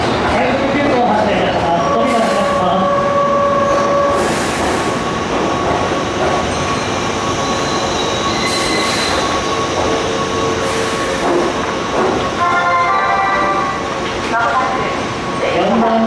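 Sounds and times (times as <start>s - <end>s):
train wheels rumbling on rail: 0.0s - 16.0s
faint high wheel squeal: 6.6s - 11.2s.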